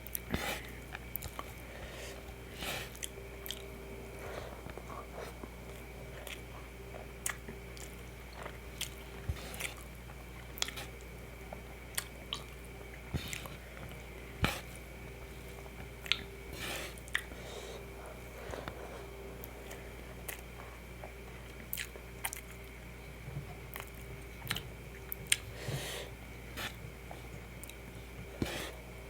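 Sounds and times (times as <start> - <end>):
wet chewing: 0.0 - 11.1, 11.8 - 14.8, 15.6 - 16.3, 16.9 - 17.4, 18.4 - 22.8, 23.5 - 25.5
faint steady hum: 0.0 - 29.0.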